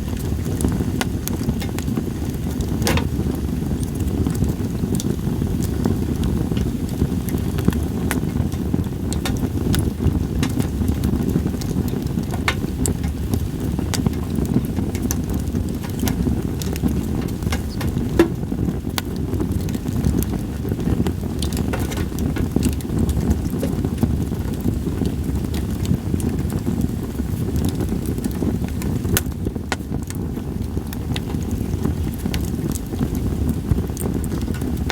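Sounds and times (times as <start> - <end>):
campfire crackling and popping: 0.0 - 34.9
low rumble of wind: 0.0 - 34.9.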